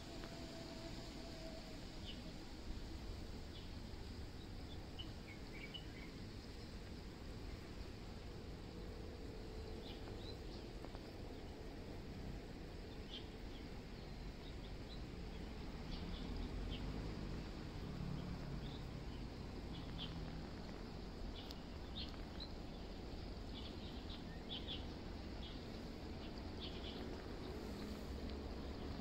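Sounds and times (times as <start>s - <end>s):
low steady rumble: 0.0s - 29.0s
small birds chirping: 12.8s - 29.0s.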